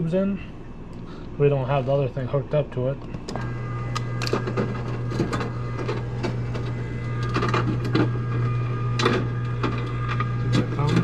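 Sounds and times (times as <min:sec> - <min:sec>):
ice dispenser motor hum: 0:03.1 - 0:11.0.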